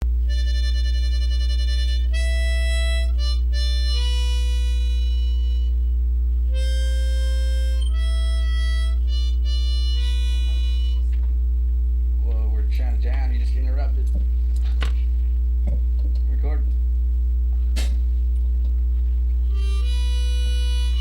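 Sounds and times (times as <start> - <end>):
loud steady low hum: 0.0 - 21.0
slow reed wind melody: 19.5 - 21.0.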